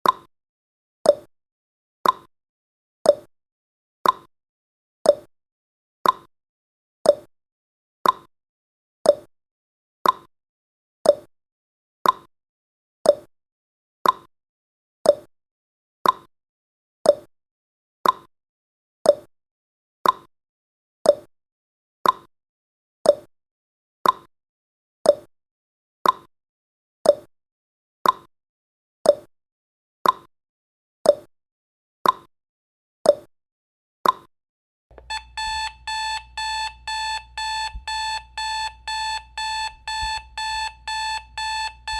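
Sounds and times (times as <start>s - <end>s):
timer ticking: 34.9s - 41.9s.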